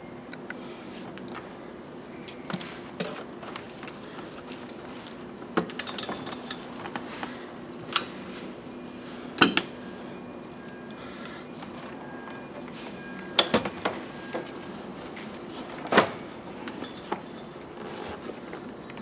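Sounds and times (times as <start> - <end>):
hand tools clicking and knocking: 5.6 - 6.8, 9.4 - 9.7.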